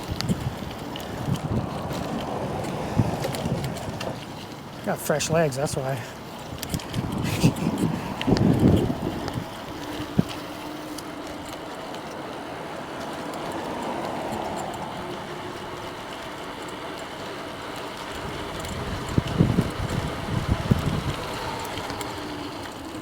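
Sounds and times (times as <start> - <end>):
wind on microphone: 0.0 - 4.4, 6.4 - 11.0, 18.2 - 22.3
bicycle tyre hum on pavement: 0.0 - 23.0.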